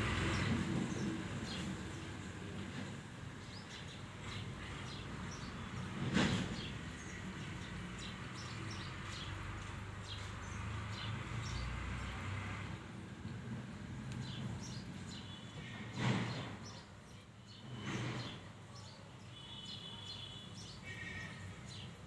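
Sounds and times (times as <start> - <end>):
small birds chirping: 3.4 - 12.3, 14.0 - 22.0.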